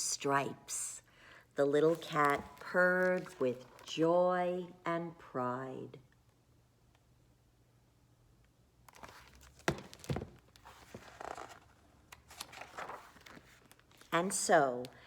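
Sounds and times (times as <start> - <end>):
book page turning: 1.8 - 4.0, 8.9 - 14.2.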